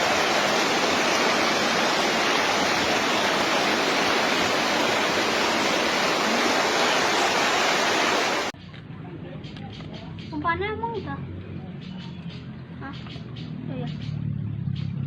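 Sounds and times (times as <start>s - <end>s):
loud rush of flowing water: 0.0s - 8.6s.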